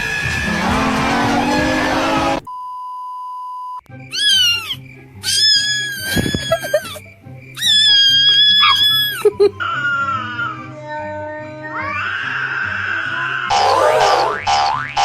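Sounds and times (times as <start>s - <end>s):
cat meowing: 7.6s - 12.5s, 13.5s - 14.4s.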